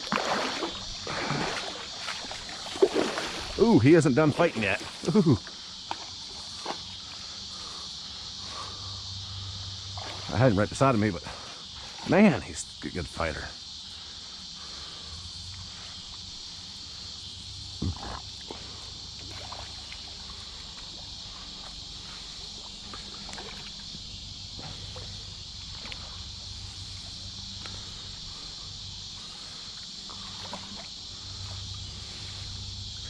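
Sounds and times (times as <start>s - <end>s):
water sloshing and splashing: 0.0s - 7.3s, 9.7s - 12.3s, 17.6s - 32.6s
crickets and insects chirping: 0.0s - 33.0s.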